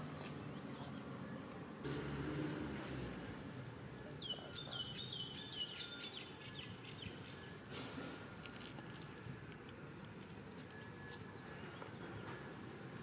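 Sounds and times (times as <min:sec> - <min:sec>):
bird chirping: 0:04.2 - 0:07.6.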